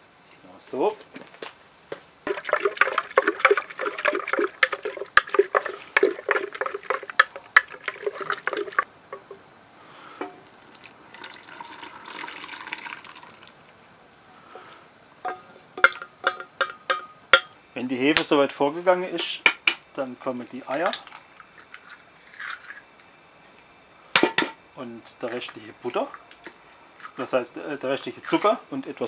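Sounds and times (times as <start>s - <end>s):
spoon stirring liquid in a bowl: 2.3s - 9.3s.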